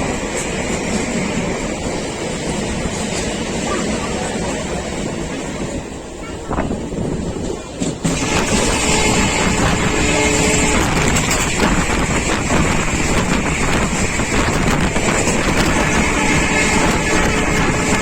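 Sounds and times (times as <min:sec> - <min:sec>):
train rumble: 0:00.0 - 0:18.0
wind rushing on microphone: 0:05.0 - 0:18.0.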